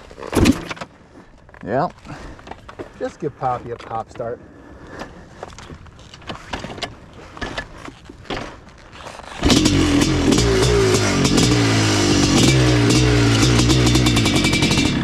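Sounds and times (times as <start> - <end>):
scuffs and clicks: 4.9 - 9.4
two-stroke motorcycle engine revving: 9.4 - 15.0.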